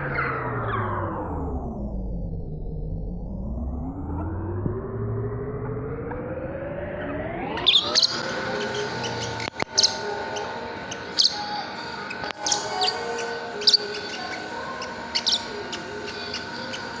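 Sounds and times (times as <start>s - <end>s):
steady hum: 3.3s - 17.0s
lovebirds chirping: 7.6s - 17.0s
clicks: 9.1s - 10.4s, 12.1s - 13.0s.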